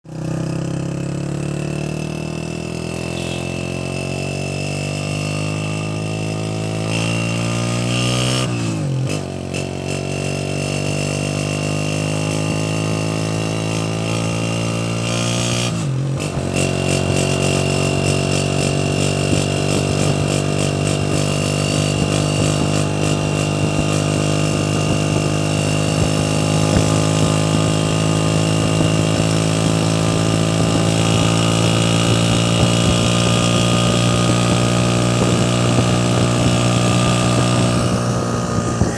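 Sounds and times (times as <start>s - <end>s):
motorcycle engine shifting gears: 0.1s - 38.9s.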